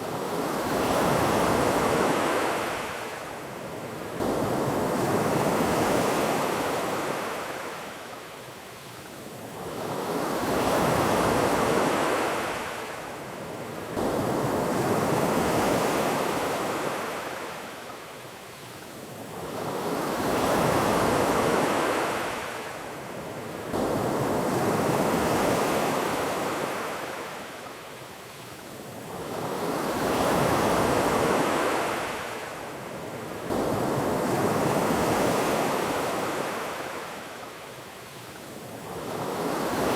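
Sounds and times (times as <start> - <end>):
ocean surf washing ashore: 28.7 - 37.7, 38.5 - 39.9.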